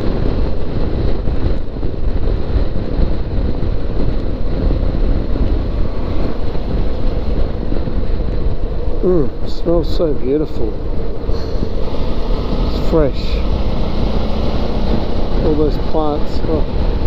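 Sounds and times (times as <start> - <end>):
motorbike running: 0.0 - 17.0
wind rumble on microphone: 0.0 - 17.0.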